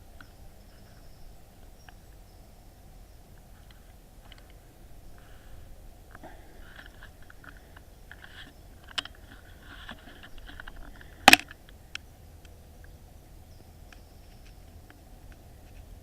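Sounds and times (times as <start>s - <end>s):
handling clicks: 10.5s - 11.6s.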